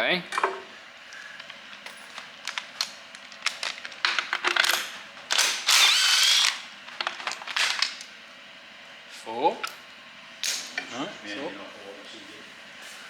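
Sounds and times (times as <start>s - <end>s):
ratchet wrench clicking: 5.7s - 6.6s.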